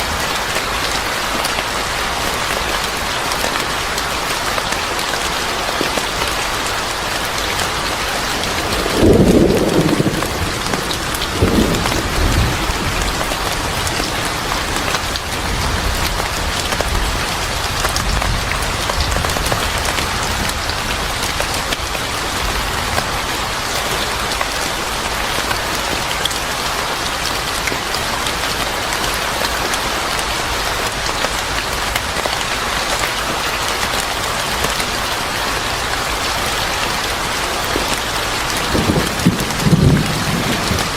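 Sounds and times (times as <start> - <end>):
steady rain falling: 0.0 - 40.9
thunder rumble: 8.4 - 14.9, 38.6 - 40.9.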